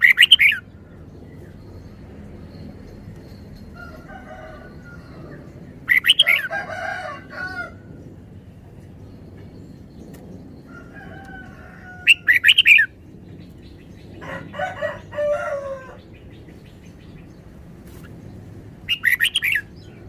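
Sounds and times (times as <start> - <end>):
bird singing bubbly phrases: 0.0 - 0.8, 5.9 - 6.4, 18.9 - 19.8
lower-pitched bird call: 0.0 - 0.8, 4.8 - 6.6, 10.7 - 13.0, 18.9 - 20.0.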